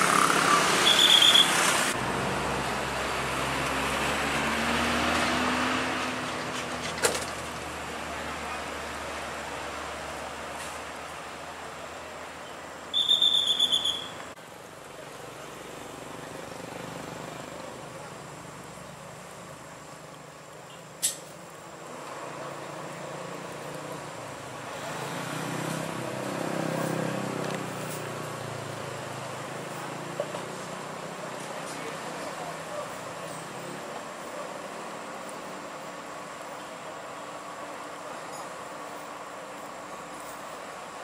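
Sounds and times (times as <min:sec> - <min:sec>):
high pulsing whistle tone: 0:00.8 - 0:01.6, 0:12.9 - 0:14.2
sharp click: 0:21.0 - 0:21.4.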